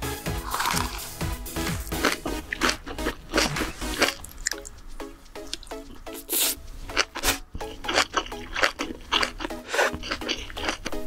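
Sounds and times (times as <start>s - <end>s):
light background music: 0.0s - 11.0s
wet chewing and squishing: 1.8s - 4.7s, 7.0s - 11.0s.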